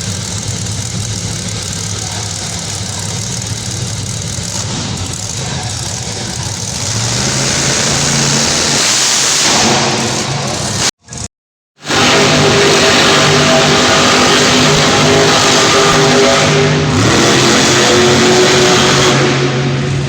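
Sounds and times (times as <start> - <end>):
monster truck engine revving: 0.0 - 20.0.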